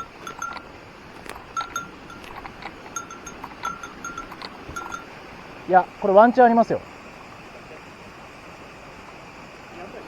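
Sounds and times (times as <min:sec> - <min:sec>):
small bell jingling: 0:00.0 - 0:05.2
stream water rushing: 0:00.0 - 0:10.0.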